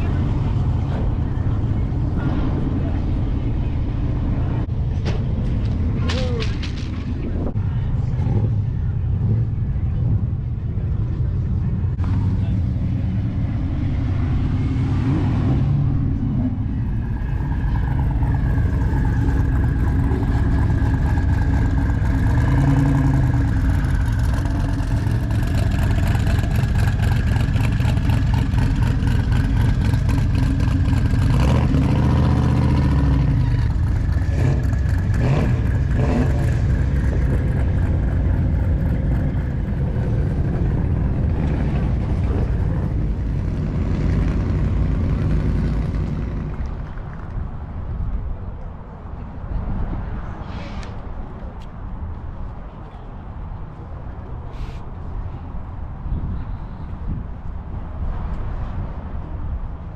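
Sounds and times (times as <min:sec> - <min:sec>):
car engines running: 0:00.0 - 0:59.9
car engine revving: 0:11.9 - 0:47.0.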